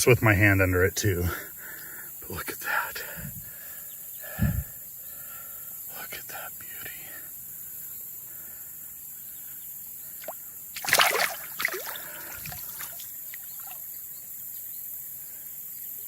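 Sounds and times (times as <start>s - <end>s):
fish splashing in water: 10.2s - 13.9s
river water rushing: 10.8s - 13.8s.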